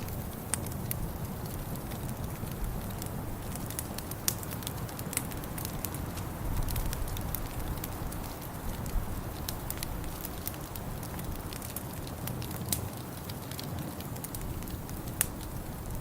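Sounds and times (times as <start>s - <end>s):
sharp pops and snaps: 0.0s - 16.0s
wood fire crackling: 0.0s - 16.0s.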